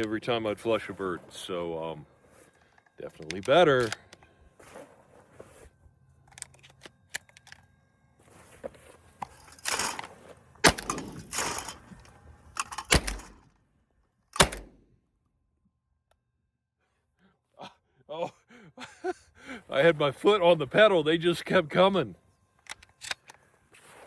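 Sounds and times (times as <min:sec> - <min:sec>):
shotgun shots: 0:10.6 - 0:11.7, 0:12.9 - 0:13.4, 0:14.4 - 0:14.8.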